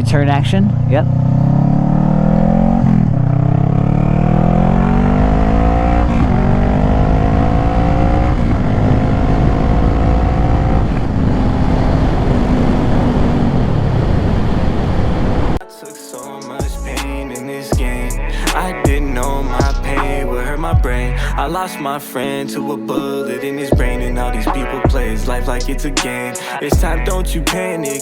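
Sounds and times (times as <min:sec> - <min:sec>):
motorcycle engine accelerating: 0:00.0 - 0:15.6
wind rush on microphone: 0:08.2 - 0:15.6.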